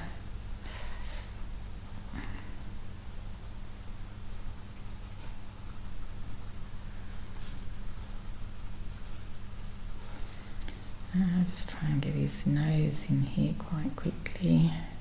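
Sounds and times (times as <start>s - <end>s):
steady low hum: 0.0s - 15.0s
pencil scratching on paper: 4.6s - 10.4s.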